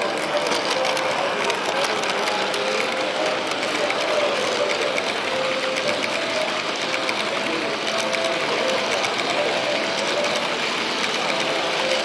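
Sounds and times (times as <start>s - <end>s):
crowd chatter: 0.0s - 12.0s
wheels clicking over track: 0.0s - 12.0s.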